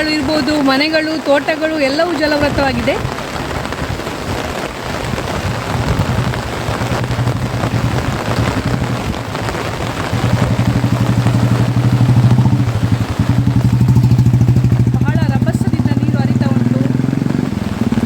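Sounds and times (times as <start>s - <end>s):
heavy rain: 0.0s - 18.0s
rushing floodwater: 0.0s - 18.0s
motor engine pulsing: 6.0s - 18.0s.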